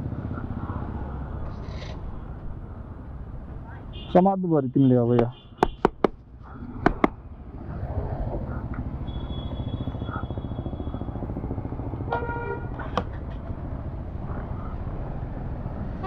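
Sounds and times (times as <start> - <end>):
vehicle horn: 9.1 - 9.9, 12.1 - 12.7.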